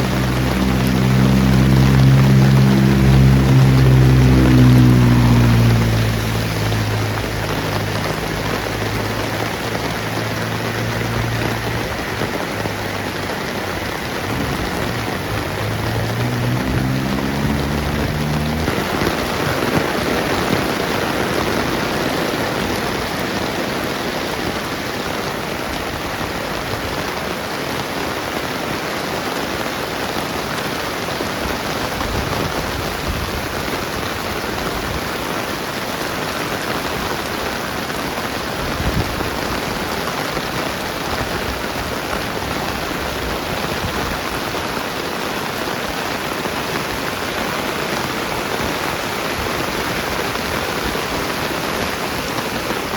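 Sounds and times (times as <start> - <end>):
low engine hum: 0.0 - 26.5
rain pattering on ground: 0.0 - 52.9.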